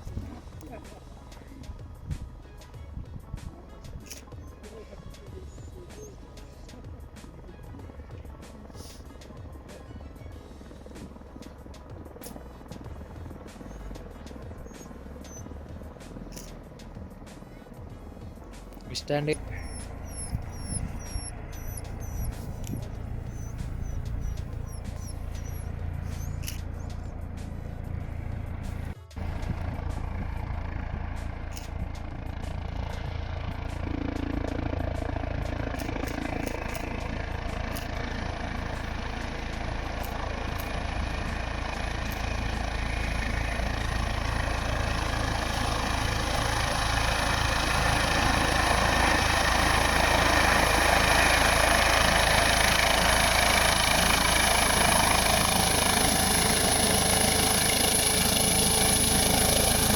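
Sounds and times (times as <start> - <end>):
vehicle engine running: 0.0 - 59.9
light clicks: 16.3 - 16.6, 23.6 - 27.2, 31.5 - 31.8, 35.7 - 37.0, 37.7 - 38.0.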